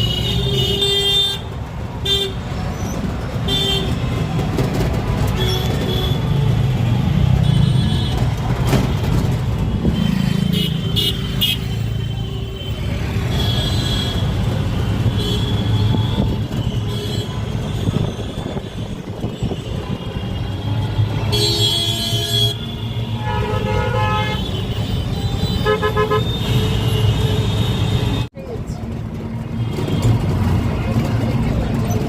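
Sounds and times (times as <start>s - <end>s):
road traffic engines: 0.0s - 32.0s
car horn toots: 21.3s - 28.2s.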